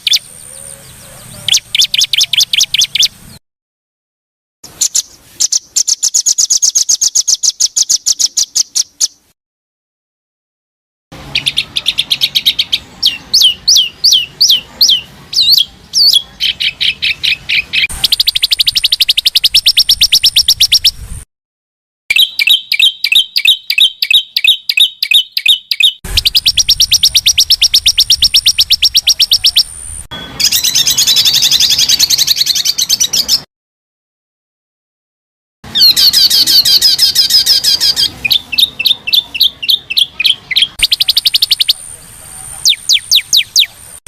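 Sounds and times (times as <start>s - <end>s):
rapid bird trills: 0.0s - 3.2s, 4.7s - 9.2s, 11.3s - 21.0s, 22.1s - 33.4s, 35.7s - 44.0s
dense bird warble: 0.0s - 3.4s, 11.2s - 21.2s, 22.2s - 33.5s, 35.7s - 44.0s
fast repeated bird chirps: 0.0s - 3.4s, 4.6s - 9.2s, 11.2s - 21.0s, 22.1s - 33.5s, 35.7s - 44.0s
downward-sweeping bird whistles: 16.8s - 21.0s, 22.1s - 33.3s, 35.7s - 43.8s.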